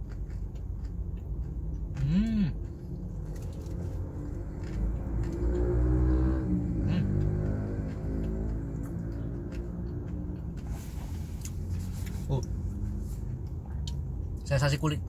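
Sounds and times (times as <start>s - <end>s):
chewing a burger: 0.0s - 14.5s
person humming: 2.0s - 2.6s.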